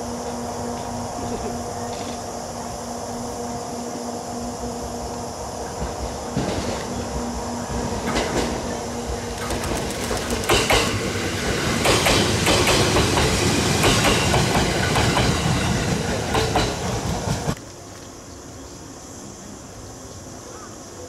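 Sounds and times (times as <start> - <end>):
train wheels clacking over rail joints: 5.8 - 17.6.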